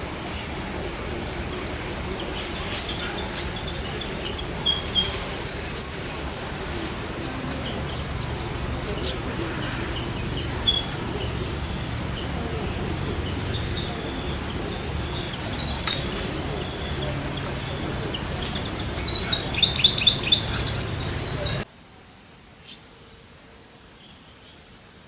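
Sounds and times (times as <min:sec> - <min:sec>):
insect trilling: 0:00.0 - 0:21.6
birds chirping: 0:00.0 - 0:21.7.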